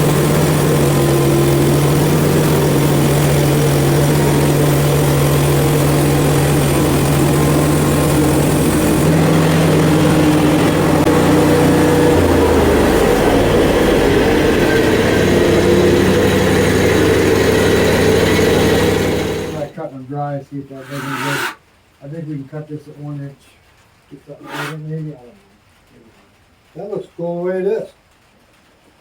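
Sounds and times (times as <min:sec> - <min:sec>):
band blade sawing through log: 0:00.0 - 0:19.7, 0:20.8 - 0:21.6, 0:24.4 - 0:24.9
sawmill engine running: 0:00.0 - 0:19.9, 0:20.7 - 0:21.6, 0:24.3 - 0:25.0.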